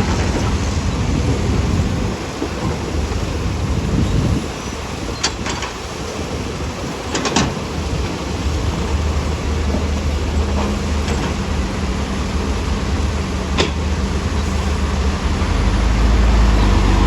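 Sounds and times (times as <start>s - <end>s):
diesel engine humming: 7.6s - 17.0s.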